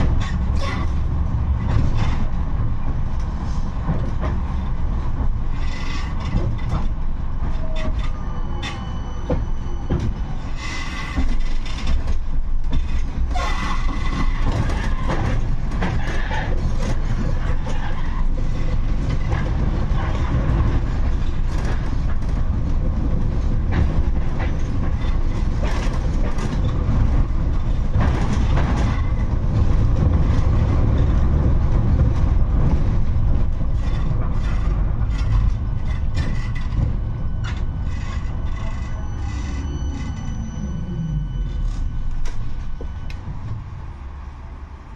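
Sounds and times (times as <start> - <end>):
clicks and knocks of tram: 0.0 - 40.6
tram wheels rumbling on rails: 0.0 - 44.9.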